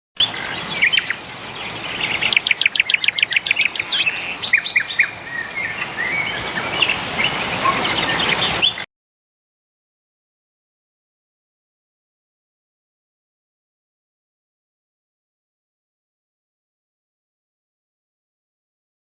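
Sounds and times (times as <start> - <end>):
small birds chirping: 0.2 - 8.9
steady outdoor hiss: 0.2 - 8.9.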